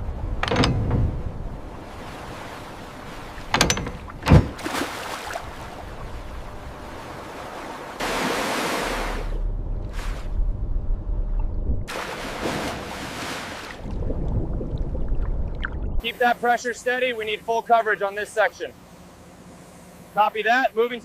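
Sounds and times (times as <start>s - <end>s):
low rumble: 0.0s - 4.6s, 8.0s - 13.0s, 13.8s - 16.0s
sharp knocks: 0.4s - 1.4s, 3.4s - 4.7s
rushing water: 1.2s - 9.4s, 11.9s - 16.2s.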